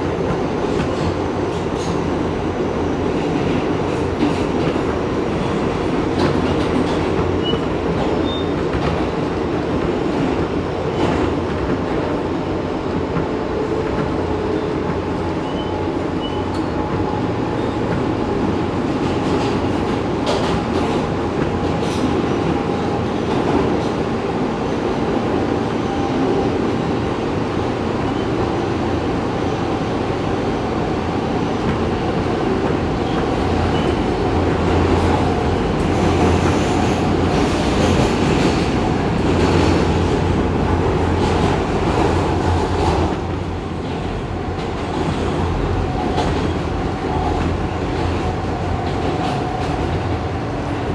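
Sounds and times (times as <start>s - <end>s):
rail joint clicks: 0.0s - 50.9s
train wheel and track noise: 0.0s - 50.9s.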